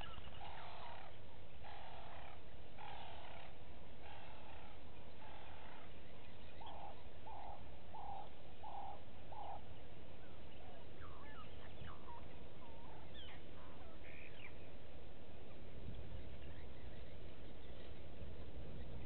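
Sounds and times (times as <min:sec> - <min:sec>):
bird hooting: 0:00.0 - 0:14.5.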